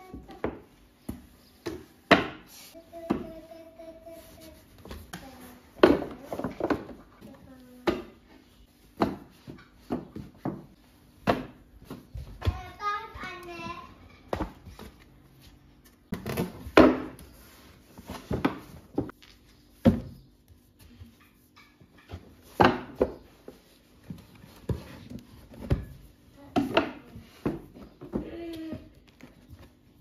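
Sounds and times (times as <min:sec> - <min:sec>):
household objects knocking and clattering: 0:05.8 - 0:07.2, 0:09.0 - 0:12.8.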